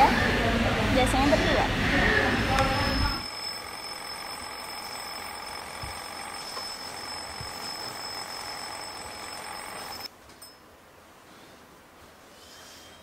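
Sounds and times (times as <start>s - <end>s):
alarm clock ringing: 2.7s - 10.1s.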